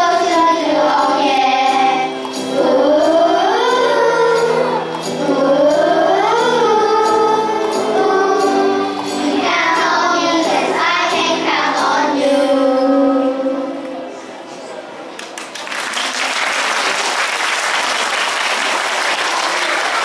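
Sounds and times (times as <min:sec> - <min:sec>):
children singing together: 0:00.0 - 0:14.2
backing music: 0:00.0 - 0:14.3.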